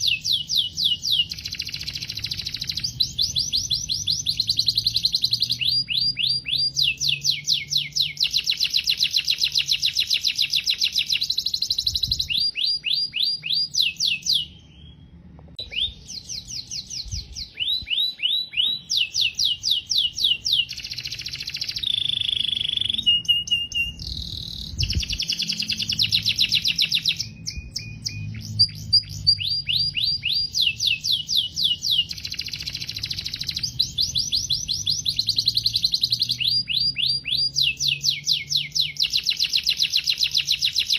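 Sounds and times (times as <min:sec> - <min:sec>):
canary trilling: 0:00.0 - 0:40.9.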